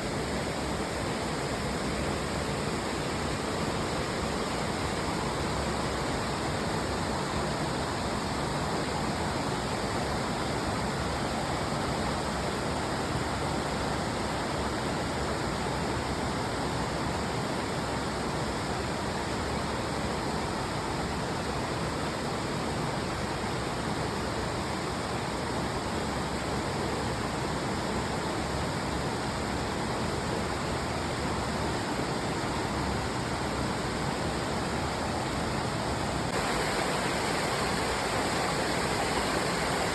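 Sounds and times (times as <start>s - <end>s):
waterfall rushing: 34.6s - 39.9s.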